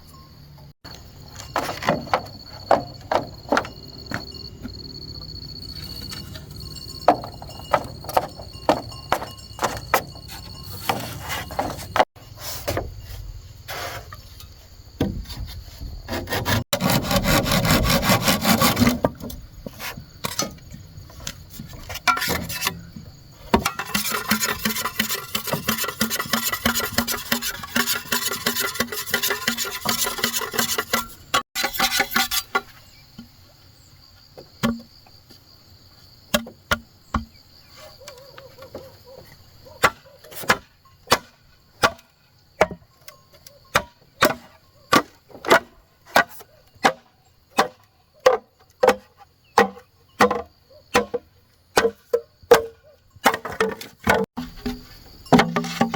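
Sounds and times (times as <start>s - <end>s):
insects trilling: 0.1s - 16.1s
tools knocking on bamboo: 1.4s - 4.8s
hand saw cutting bamboo: 16.1s - 19.1s, 23.6s - 32.7s.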